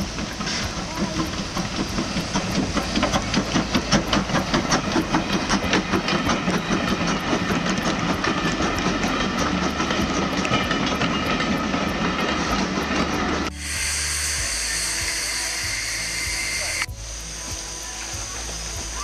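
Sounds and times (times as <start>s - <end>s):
train wheels clattering over rail joints: 0.0s - 19.0s
running gear squeal: 12.5s - 16.9s.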